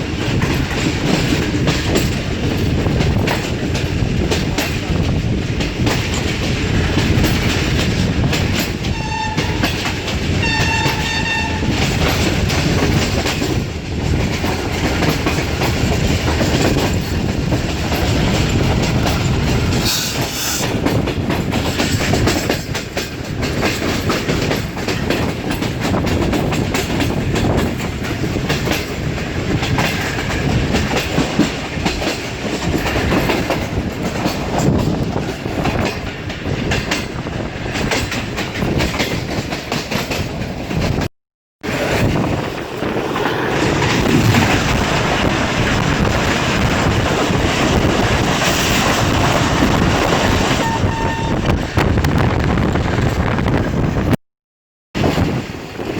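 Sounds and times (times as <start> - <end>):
train wheels clattering: 0.0 - 53.9
locomotive horn blasts: 8.9 - 9.8, 10.4 - 11.8, 50.6 - 51.6.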